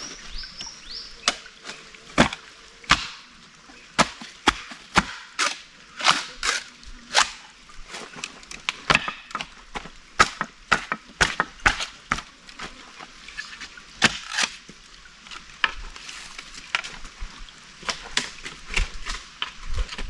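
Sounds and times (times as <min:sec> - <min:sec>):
wood being chopped: 0:02.2 - 0:03.2, 0:04.0 - 0:06.3, 0:10.2 - 0:11.9.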